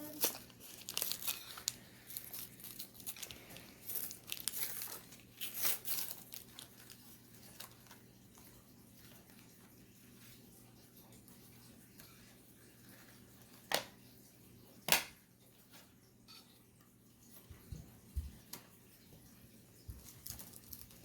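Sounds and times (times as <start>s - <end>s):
blister pack tearing and crinkling: 0.0s - 8.0s, 20.1s - 21.0s.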